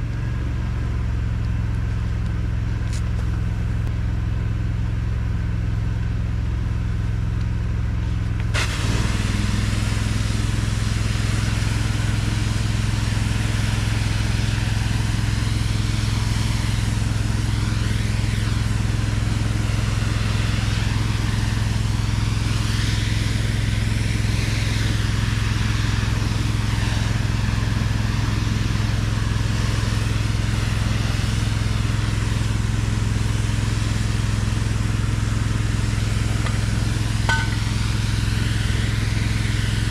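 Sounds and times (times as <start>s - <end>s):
pressure washer engine running: 0.0s - 39.9s
spray hissing: 8.5s - 39.9s.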